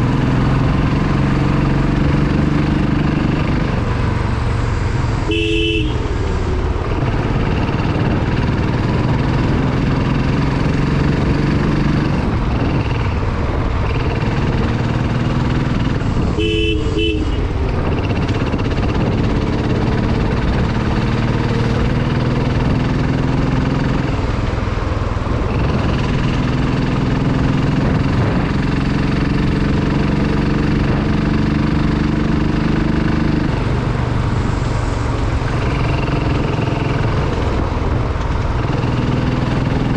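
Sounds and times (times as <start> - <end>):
motorcycle engine: 0.0 - 39.9
horn beeping: 5.2 - 6.3, 16.3 - 17.8.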